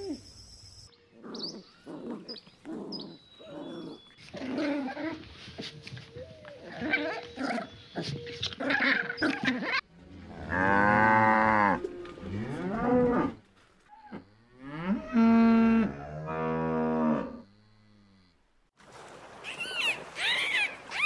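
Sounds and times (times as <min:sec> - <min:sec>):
dogs growling and whining: 0:01.2 - 0:09.8
cow mooing: 0:10.1 - 0:13.4, 0:14.0 - 0:18.4.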